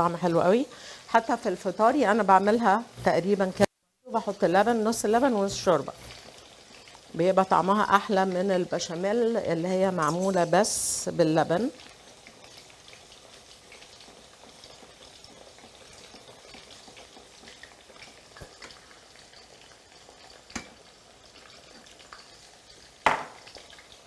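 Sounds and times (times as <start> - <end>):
faint sizzle of frying: 0.0 - 24.0
sharp knock: 23.1 - 23.4.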